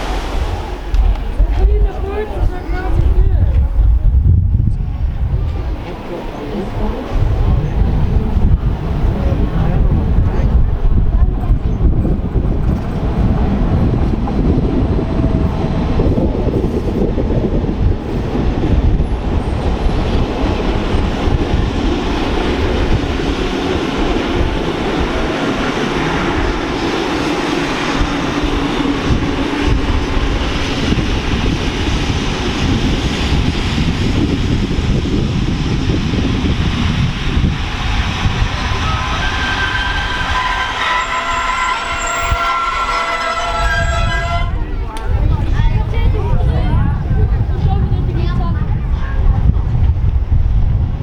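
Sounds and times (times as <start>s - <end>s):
train wheels rumbling on rails: 0.0s - 51.0s
train motor hum: 4.5s - 46.4s.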